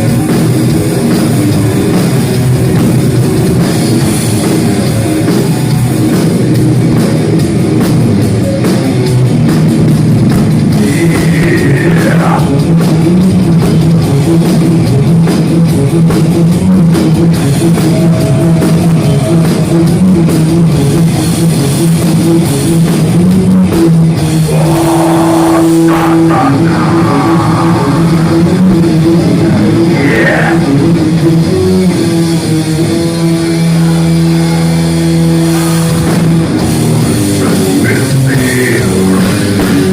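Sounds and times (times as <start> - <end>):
heavy metal band playing live: 0.0 - 39.9
high guitar notes bending down: 10.5 - 14.2, 24.1 - 39.9.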